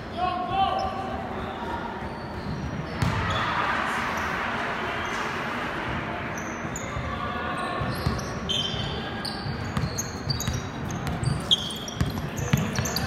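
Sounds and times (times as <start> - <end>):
sneaker squeaks: 0.6 - 3.6, 6.3 - 13.0
basketball dribbled on court: 9.4 - 13.0.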